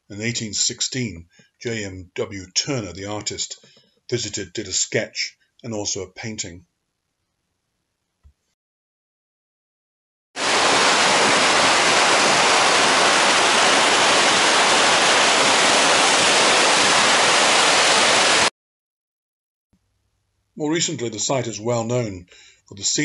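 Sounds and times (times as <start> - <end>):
waterfall rushing: 10.4 - 18.5.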